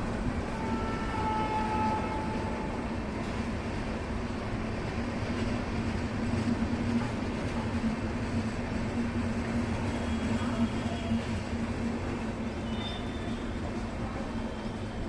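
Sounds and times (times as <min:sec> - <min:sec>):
train running along track: 0:00.0 - 0:15.0.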